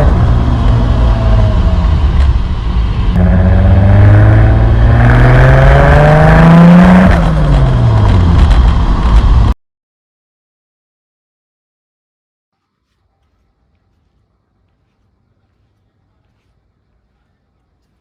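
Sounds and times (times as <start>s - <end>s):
car engine accelerating: 0.0s - 9.5s.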